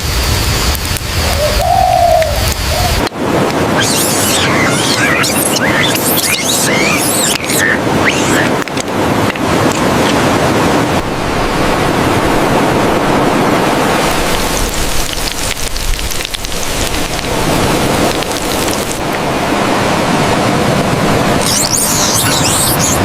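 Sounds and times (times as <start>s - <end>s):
loud steady rushing noise: 0.0s - 23.0s.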